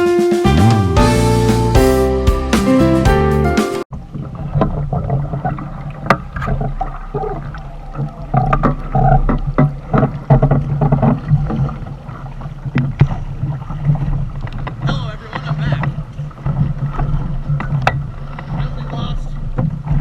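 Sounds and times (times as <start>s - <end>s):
background music: 0.0s - 3.9s
water sloshing around a boat: 3.9s - 20.0s.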